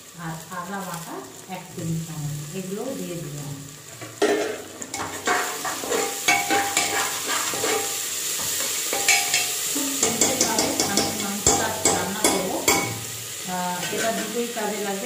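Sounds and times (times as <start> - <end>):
food sizzling in hot oil: 0.0 - 15.0
utensil scraping metal pot: 3.9 - 13.2.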